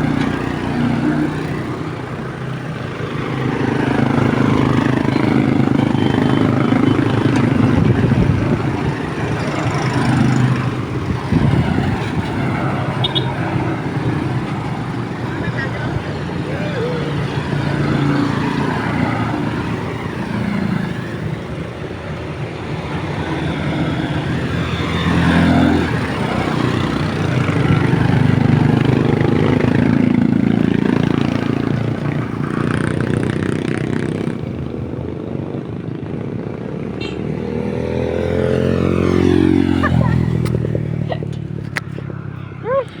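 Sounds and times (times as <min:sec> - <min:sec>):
motorcycle engine revving: 0:00.0 - 0:21.5, 0:36.4 - 0:42.3
motorcycles passing by: 0:00.0 - 0:43.0.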